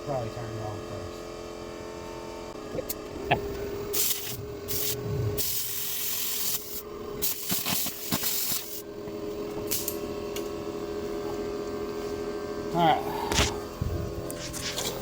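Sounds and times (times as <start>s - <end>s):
air compressor hum: 0.0s - 15.0s
plasma cutter hissing: 3.9s - 8.8s.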